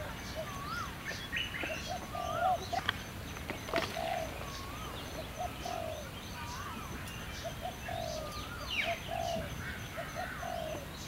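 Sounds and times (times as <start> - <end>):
whistled bird calls: 0.1 - 3.0, 3.6 - 11.0.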